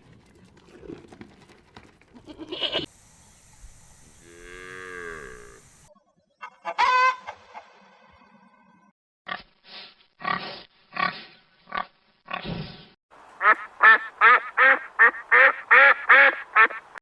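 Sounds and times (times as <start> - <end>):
duck quacking rapidly: 13.4 - 17.0.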